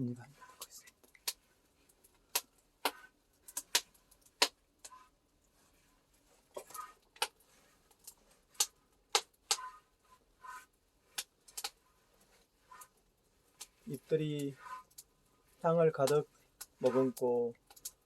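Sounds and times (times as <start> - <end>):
crackling pops from roasting tea: 2.1 - 5.0, 6.5 - 9.8, 11.1 - 11.8.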